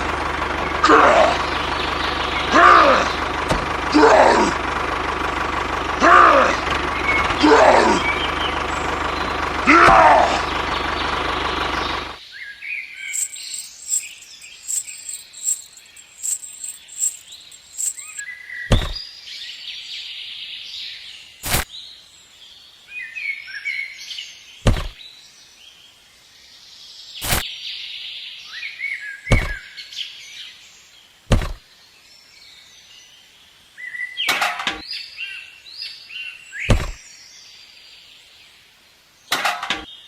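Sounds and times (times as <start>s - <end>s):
birds chirping: 8.0s - 9.5s, 13.1s - 19.0s.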